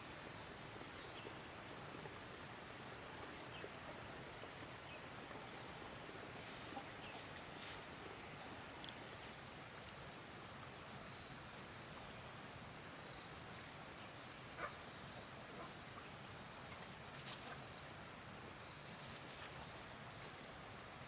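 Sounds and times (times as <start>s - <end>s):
high-pitched hiss: 4.1s - 21.0s
light ticks: 8.8s - 9.0s.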